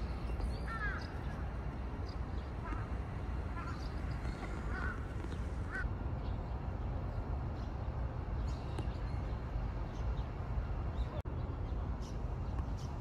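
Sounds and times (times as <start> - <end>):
birds calling: 0.0 - 6.6
low outdoor background noise: 0.0 - 13.0.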